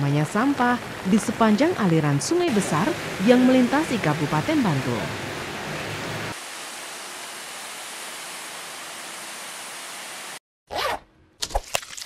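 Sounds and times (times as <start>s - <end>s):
heavy rain hissing: 0.1s - 10.4s.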